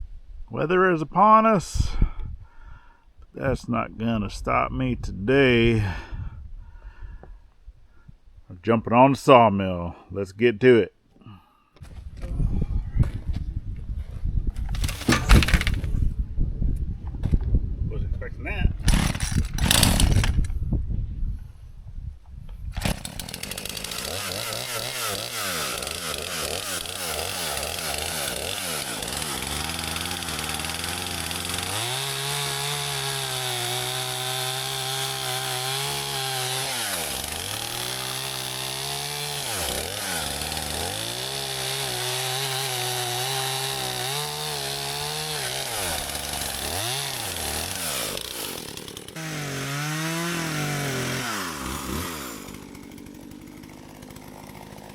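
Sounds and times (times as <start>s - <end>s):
small gasoline engine running: 22.8s - 54.9s.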